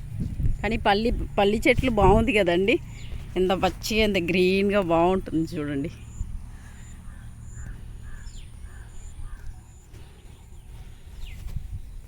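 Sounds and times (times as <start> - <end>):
low rumble: 0.0 - 12.0
crow cawing: 6.5 - 9.8.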